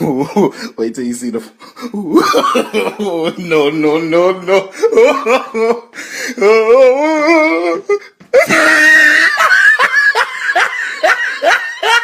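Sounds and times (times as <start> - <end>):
person laughing hard: 1.9 - 3.7, 4.4 - 12.0.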